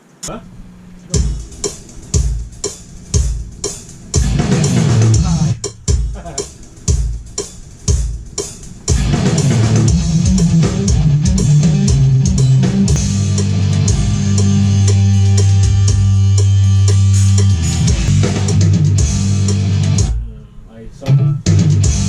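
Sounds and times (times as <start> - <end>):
band with guitar bass and drums: 0.7 - 20.2, 21.4 - 22.0.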